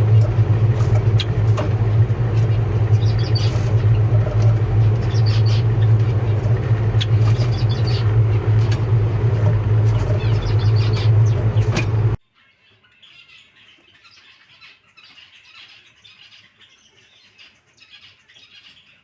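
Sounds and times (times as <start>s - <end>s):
steady low hum: 0.0s - 12.2s
small birds chirping: 0.0s - 19.0s.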